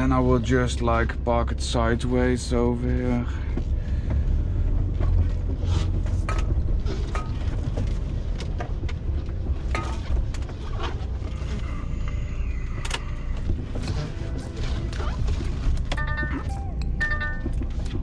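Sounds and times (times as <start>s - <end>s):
diesel engine running low: 0.0s - 18.0s
clicks and creaks: 6.3s - 16.6s.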